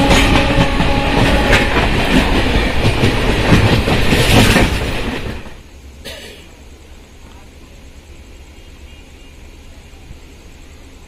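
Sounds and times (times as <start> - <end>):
wheels clickety-clack over rail joints: 0.0 - 5.6
express train passing: 0.0 - 11.0.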